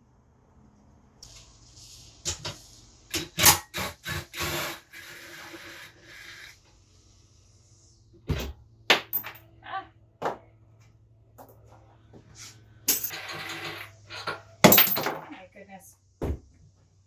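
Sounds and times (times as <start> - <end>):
tools scraping metal parts: 12.9 - 15.3.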